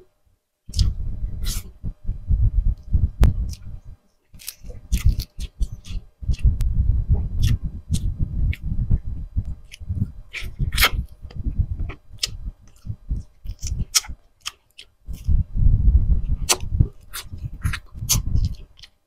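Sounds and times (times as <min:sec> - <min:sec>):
wet chewing: 0:00.7 - 0:01.7, 0:04.4 - 0:08.8, 0:09.4 - 0:15.4, 0:16.3 - 0:19.0
mouth clicks: 0:04.4 - 0:08.8, 0:09.4 - 0:15.4, 0:16.4 - 0:19.0.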